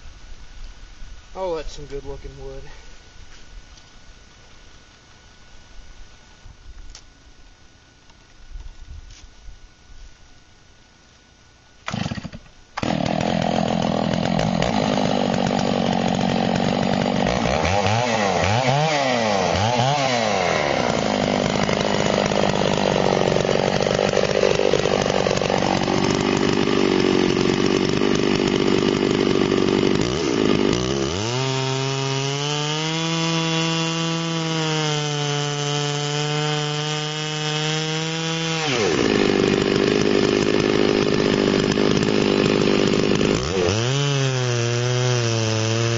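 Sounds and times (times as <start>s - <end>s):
chainsaw mill cutting log: 11.8s - 45.9s.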